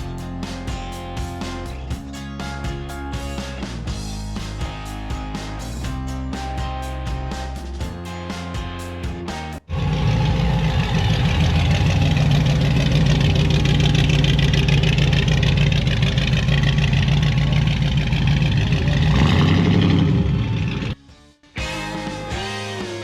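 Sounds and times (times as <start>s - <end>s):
car engine idling: 9.7s - 21.0s.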